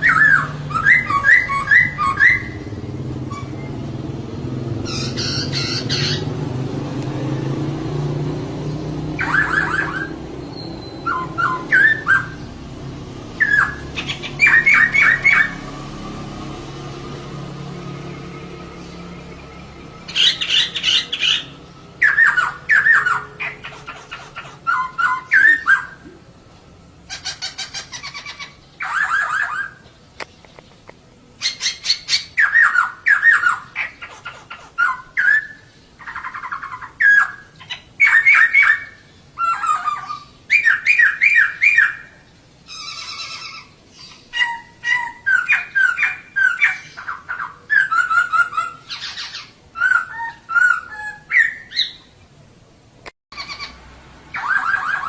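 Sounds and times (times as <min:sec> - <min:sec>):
bird calling in rapid chirps: 0:00.0 - 0:06.6, 0:08.6 - 0:16.6, 0:17.9 - 0:26.2, 0:27.0 - 0:52.2, 0:53.3 - 0:55.0.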